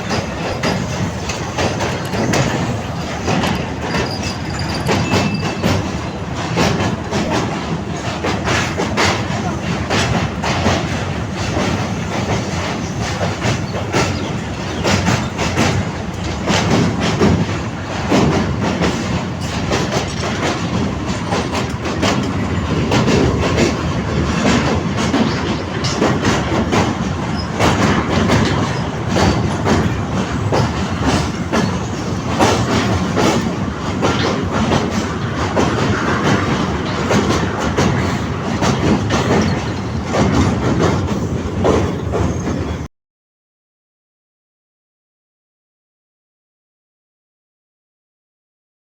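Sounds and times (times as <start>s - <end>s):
clickety-clack over rail joints: 0.0s - 42.9s
train wheels rumbling on rails: 0.0s - 42.9s.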